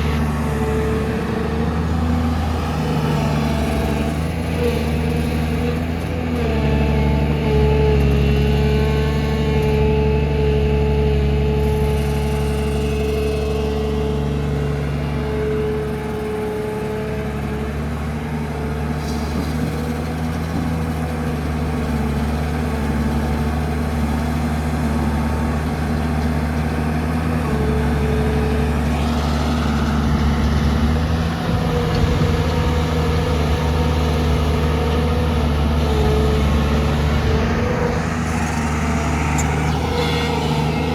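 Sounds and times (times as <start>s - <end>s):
diesel engine running: 0.0s - 40.9s
whining tone: 28.3s - 40.9s.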